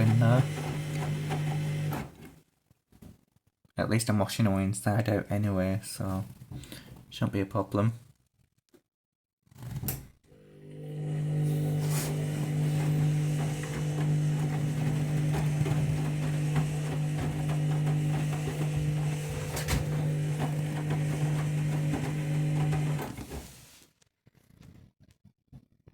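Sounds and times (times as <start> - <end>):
washing machine running: 0.0 - 2.3, 10.4 - 23.8.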